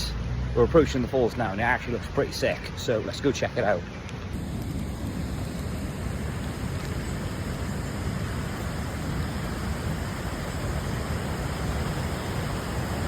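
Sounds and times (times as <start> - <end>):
waterfall rushing: 6.3 - 13.0.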